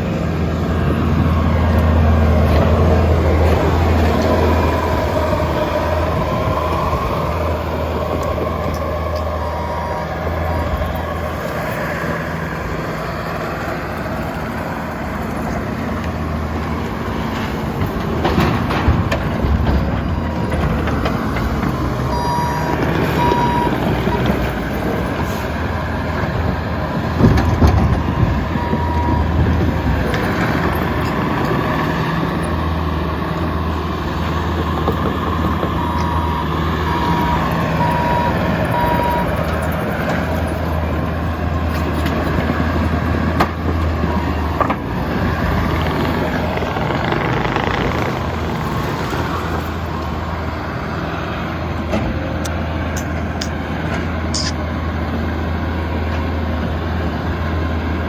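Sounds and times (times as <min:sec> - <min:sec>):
track loader engine running: 0:00.0 - 0:58.0
reverse alarm beeping: 0:08.6 - 0:11.4, 0:22.1 - 0:24.5, 0:28.0 - 0:29.6, 0:35.8 - 0:39.4.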